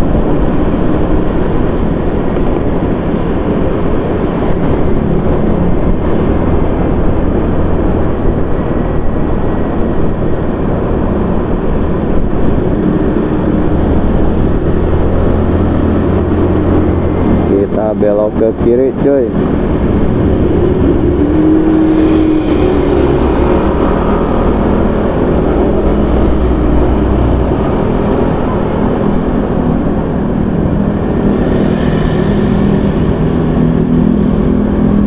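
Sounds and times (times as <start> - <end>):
vehicle engine hum: 0.0 - 35.0
wind and road noise: 0.0 - 35.0.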